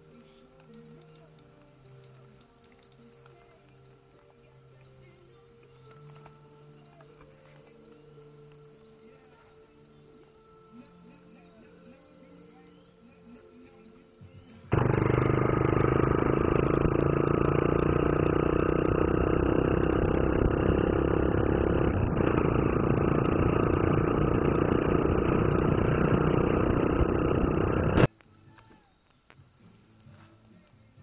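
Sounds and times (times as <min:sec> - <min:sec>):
motorcycle engine running: 0:14.7 - 0:28.1.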